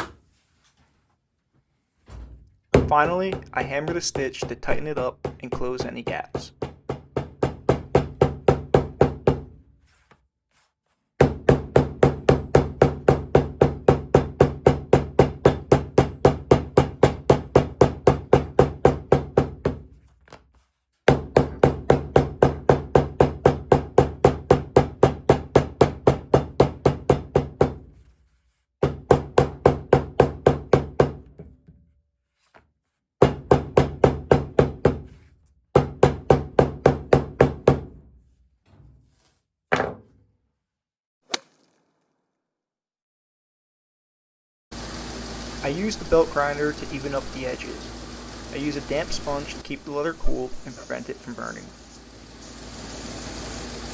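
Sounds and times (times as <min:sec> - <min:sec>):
hammer tapping leather: 0:02.8 - 0:09.5, 0:11.2 - 0:19.8, 0:21.1 - 0:27.8, 0:33.2 - 0:35.2.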